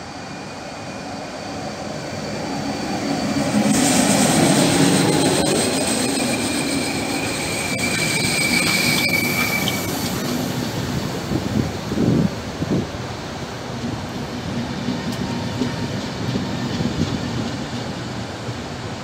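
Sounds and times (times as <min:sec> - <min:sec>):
train wheels rushing on rail: 0:00.0 - 0:19.0
thin high whining tones: 0:00.1 - 0:10.3.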